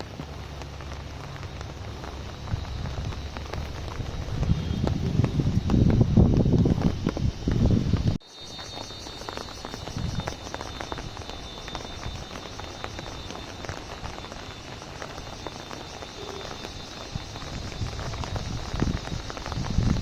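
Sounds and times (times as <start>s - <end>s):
rain pattering on an umbrella: 0.0s - 20.0s.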